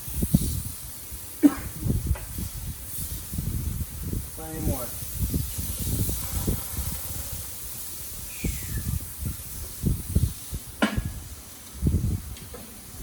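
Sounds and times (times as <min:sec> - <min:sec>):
steaks sizzling on a grill: 0:00.0 - 0:11.4.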